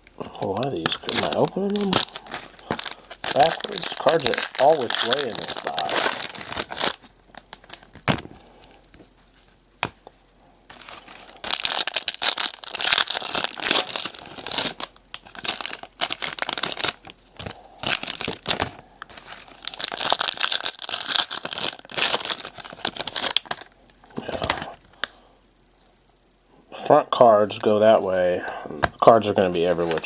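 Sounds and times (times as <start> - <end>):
wrappers tearing and crinkling: 0.3 - 8.8, 10.7 - 24.8, 29.6 - 30.0.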